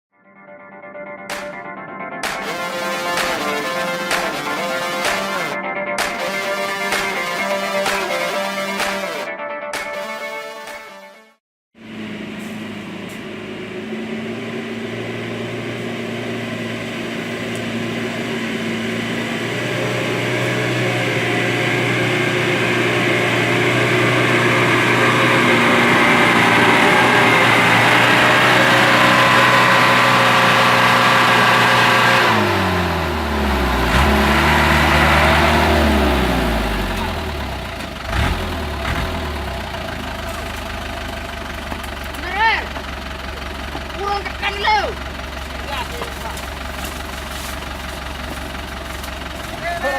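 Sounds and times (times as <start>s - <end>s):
truck engine running under load: 11.8s - 49.9s.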